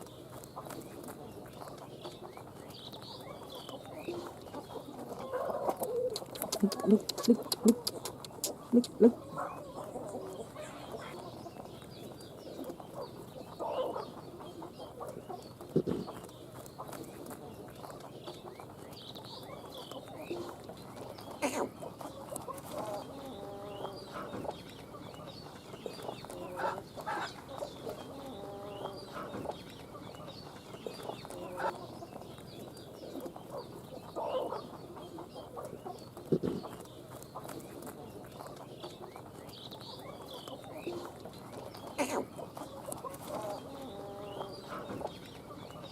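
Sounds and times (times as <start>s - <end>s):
fowl clucking: 3.6s - 11.6s, 21.3s - 32.2s, 33.2s - 39.0s, 40.5s - 45.9s.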